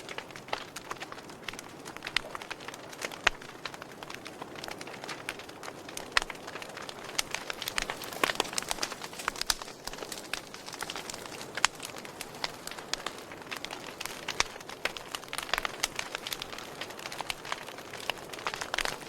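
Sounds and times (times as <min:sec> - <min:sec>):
campfire wood crackling: 0:00.0 - 0:19.0
fire hissing softly: 0:00.0 - 0:19.0
sharp pops of fire: 0:00.0 - 0:19.0.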